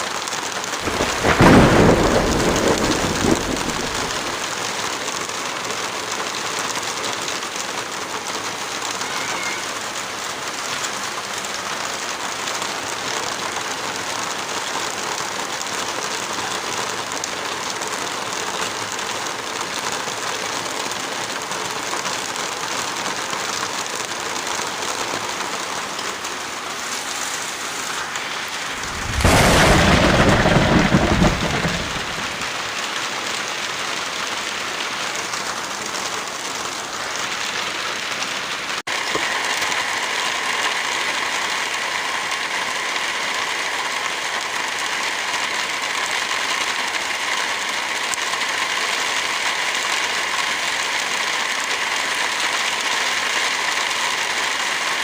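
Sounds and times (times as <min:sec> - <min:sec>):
heavy rain falling: 0:00.0 - 0:55.0
loud deep thunderclap: 0:00.8 - 0:04.4, 0:28.6 - 0:32.7.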